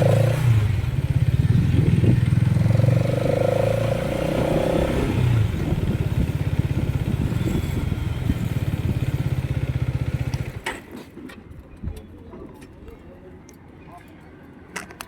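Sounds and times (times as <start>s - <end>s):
motorcycle engine idling: 0.0s - 2.9s, 5.4s - 10.6s.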